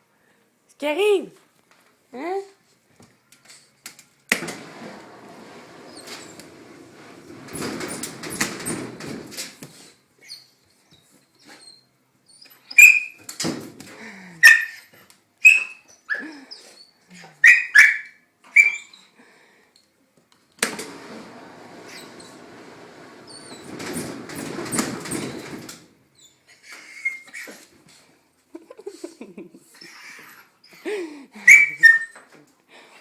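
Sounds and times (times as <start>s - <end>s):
washing machine spinning: 4.5s - 9.4s, 20.7s - 26.0s
dog yelping barks: 14.4s - 14.8s, 17.4s - 18.9s.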